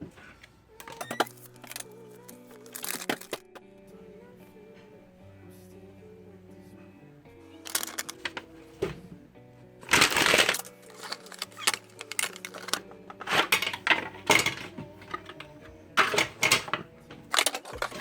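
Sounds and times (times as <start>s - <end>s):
faint background music: 0.0s - 18.0s
handling clicks and clatter: 0.8s - 3.6s, 7.7s - 9.0s, 9.8s - 18.0s.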